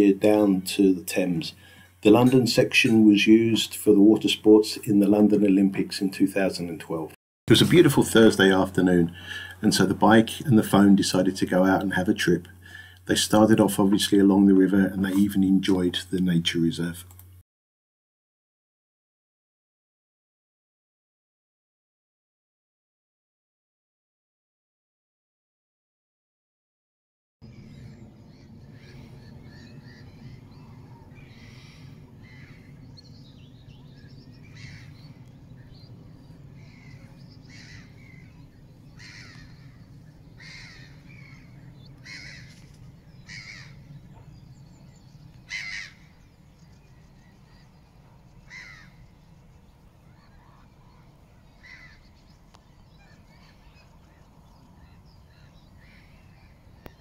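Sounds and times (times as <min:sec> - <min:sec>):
steady low hum: 0:00.0 - 0:17.4, 0:27.4 - 0:57.0
bird giving short calls: 0:36.6 - 0:43.8, 0:45.5 - 0:46.2, 0:48.5 - 0:49.0.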